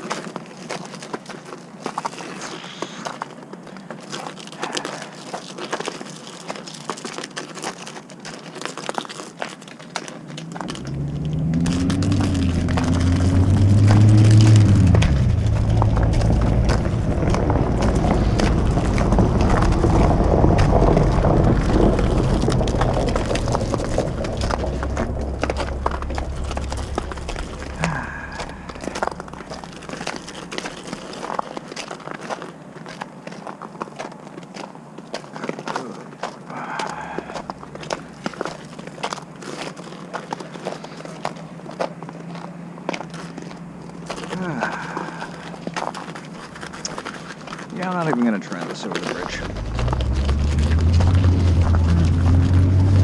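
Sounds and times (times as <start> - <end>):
footsteps crunching on snow: 0.0 - 53.0
large vehicle passing rumble: 10.3 - 31.5, 36.5 - 38.6, 48.0 - 53.0.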